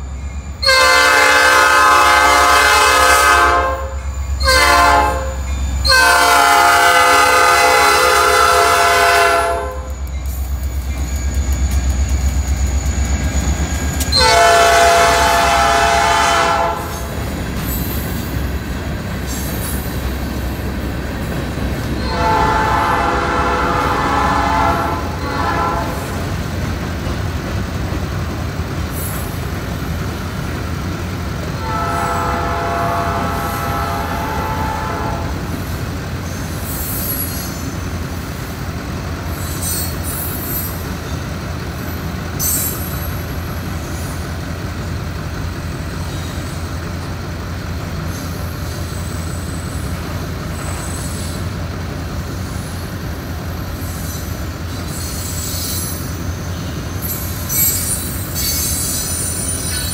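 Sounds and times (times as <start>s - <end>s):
diesel locomotive deep rumble: 0.0s - 59.9s
train horn chord: 0.6s - 10.0s, 14.1s - 17.1s, 22.0s - 26.2s, 31.6s - 35.5s
hopper cars rumbling past: 0.9s - 36.6s
wheels clickety-clack over rail joints: 6.5s - 33.8s, 35.2s - 59.9s.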